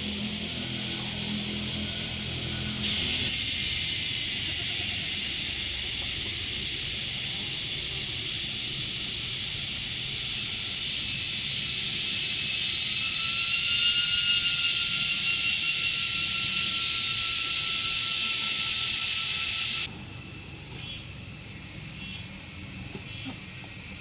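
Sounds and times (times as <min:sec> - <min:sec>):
steady hiss: 0:00.0 - 0:24.0
faint whistle-like tone: 0:11.1 - 0:19.8.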